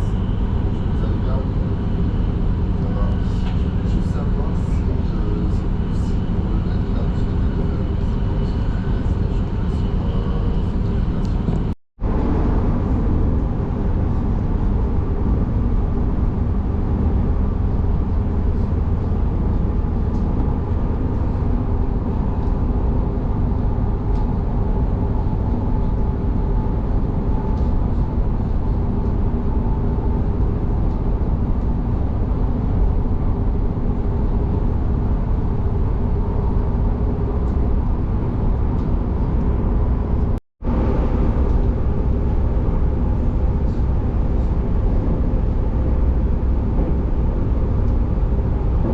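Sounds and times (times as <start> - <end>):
train rumbling on rails: 0.0 - 48.9.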